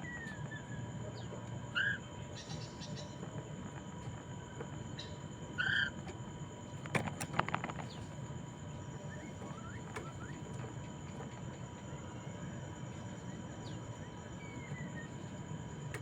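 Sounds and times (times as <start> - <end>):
faint background hum: 0.0 - 16.0.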